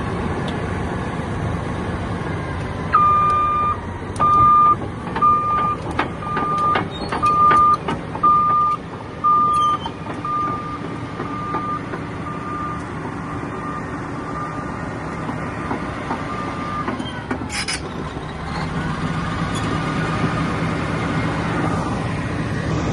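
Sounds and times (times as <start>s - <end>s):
bulldozer diesel engine running: 0.0s - 22.9s
reverse alarm beeping: 2.9s - 14.7s.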